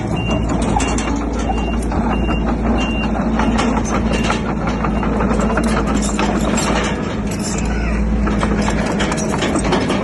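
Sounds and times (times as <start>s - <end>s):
reversing alarm beeping: 0.0s - 5.4s
clanks and rattles: 0.0s - 10.0s
diesel engine running: 0.0s - 10.0s.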